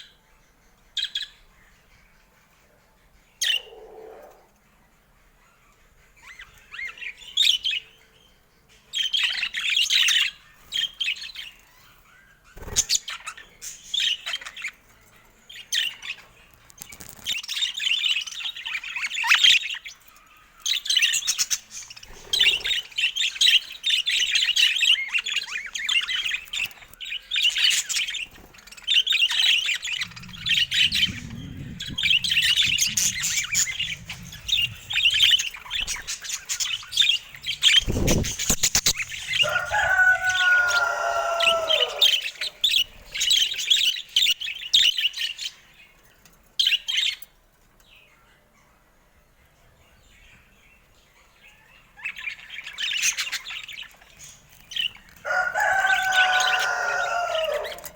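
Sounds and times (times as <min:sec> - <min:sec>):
budgerigars chattering: 0:21.0 - 0:25.3
low rumble: 0:29.7 - 0:39.4.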